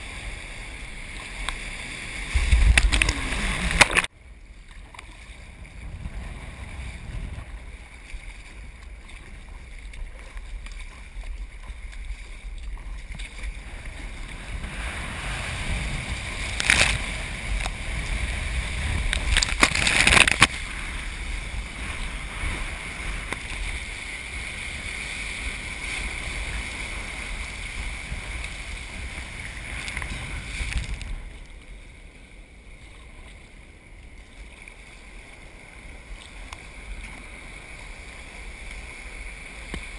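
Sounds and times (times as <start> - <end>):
ocean surf rushing: 0.0 - 4.1, 13.6 - 30.9
wind rumbling on microphone: 0.0 - 39.9.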